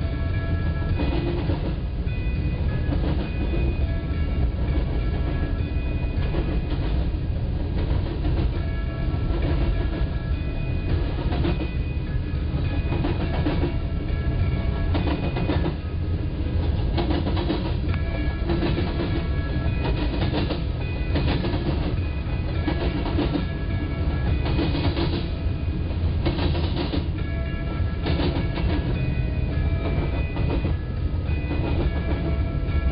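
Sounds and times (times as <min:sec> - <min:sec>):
freight train rumble: 0:00.0 - 0:32.9
wheels clacking over rail joints: 0:00.0 - 0:32.9.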